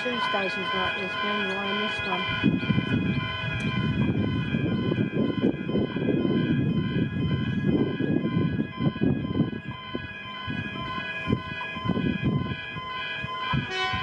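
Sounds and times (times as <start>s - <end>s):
level crossing bell ringing: 0.0s - 14.0s.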